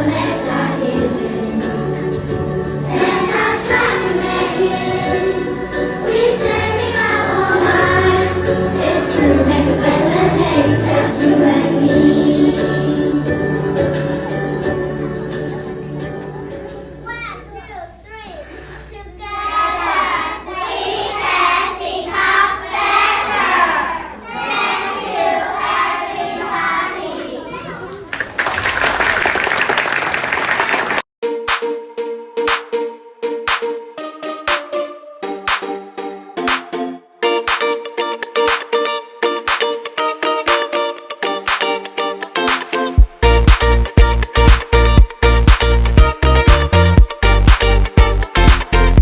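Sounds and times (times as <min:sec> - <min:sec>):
choir singing: 0:00.0 - 0:17.0, 0:19.3 - 0:27.8
instrumental accompaniment: 0:00.0 - 0:17.7, 0:31.2 - 0:49.0
bass line: 0:43.2 - 0:49.0.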